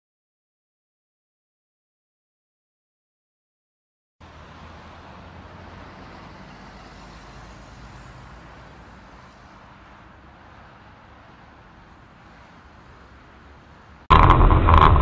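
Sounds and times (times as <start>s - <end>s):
car engine and road noise: 4.2s - 15.0s.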